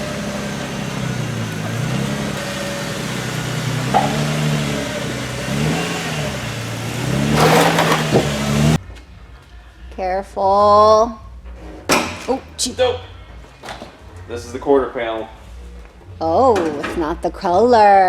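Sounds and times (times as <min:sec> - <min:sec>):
car engine revving: 0:00.0 - 0:08.8
tyre noise rushing: 0:00.0 - 0:08.8.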